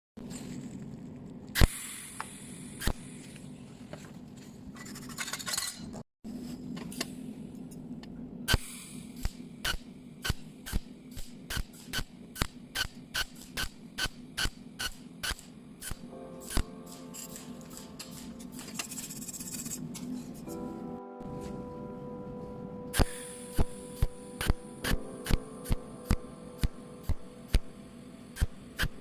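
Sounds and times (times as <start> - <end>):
steady low hum: 0.2 - 29.0
welding machine sharp snaps: 1.6 - 3.2, 8.5 - 18.9, 23.0 - 27.7, 28.4 - 29.0.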